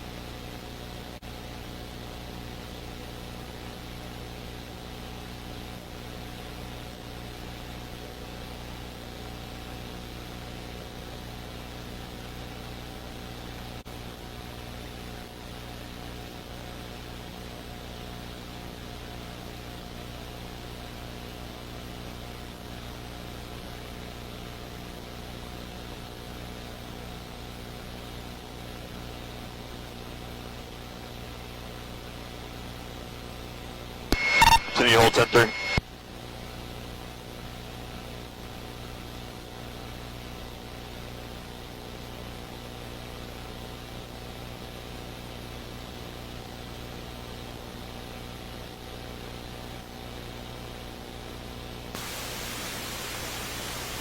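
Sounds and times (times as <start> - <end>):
radio hiss: 34.1 - 35.8, 52.0 - 54.0.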